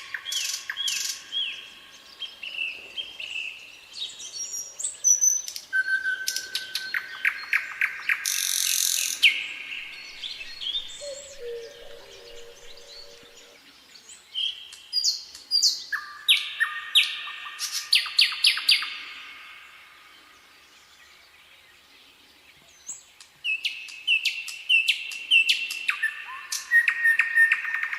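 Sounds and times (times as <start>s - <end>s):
songbirds chirping and singing: 9.1s - 19.1s.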